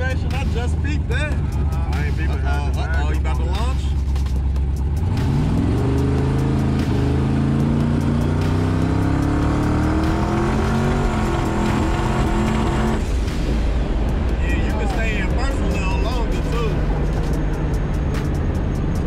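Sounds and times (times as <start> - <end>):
car engine accelerating hard: 4.2 - 19.0.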